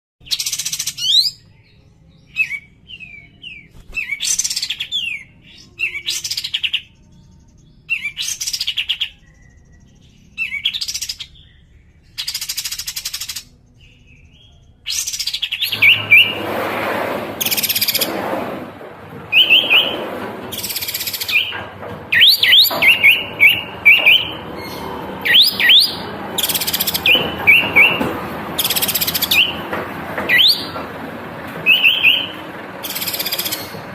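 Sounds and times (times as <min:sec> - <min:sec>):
bird singing whistled notes: 0:00.3 - 0:16.4, 0:19.3 - 0:20.0, 0:22.1 - 0:28.0, 0:30.3 - 0:30.8, 0:31.6 - 0:33.8.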